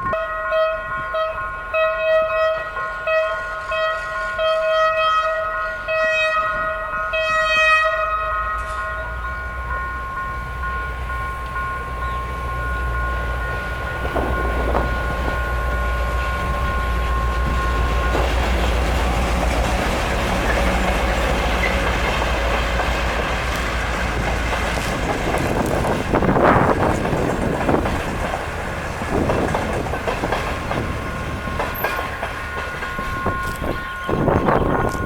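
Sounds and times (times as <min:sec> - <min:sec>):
train rumbling past: 0:00.0 - 0:35.0
wheels clicking over rail joints: 0:11.0 - 0:34.0.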